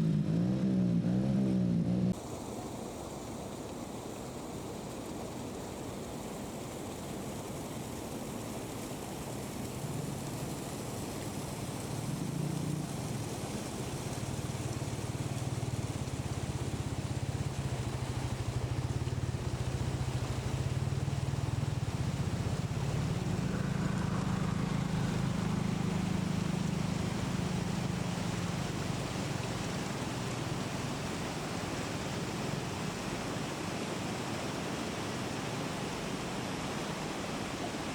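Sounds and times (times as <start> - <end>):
motor engine droning: 0.0 - 2.2, 13.9 - 29.7
steady rushing noise: 9.0 - 37.9.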